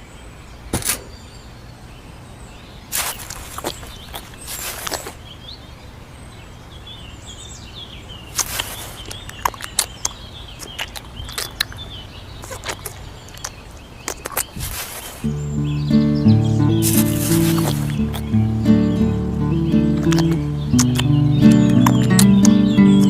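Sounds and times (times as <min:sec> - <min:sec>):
small birds chirping: 0:00.0 - 0:23.0
steady low hum: 0:15.2 - 0:23.0
music: 0:15.3 - 0:23.0
sharp clicks and taps: 0:19.8 - 0:23.0.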